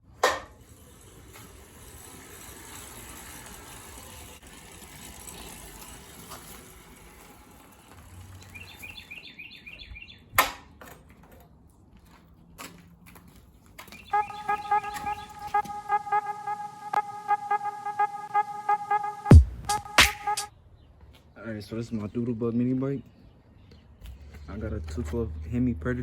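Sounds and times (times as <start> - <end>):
rapid high bird chirps: 14.0 - 20.4.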